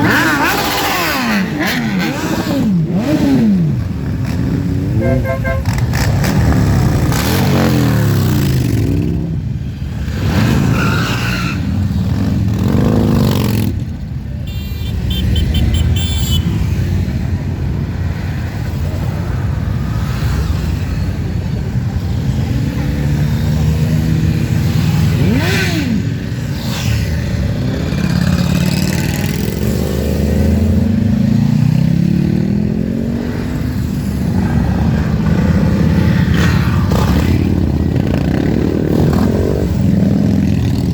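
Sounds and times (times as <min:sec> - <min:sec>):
motorcycles riding past revving: 0:14.9 - 0:40.9.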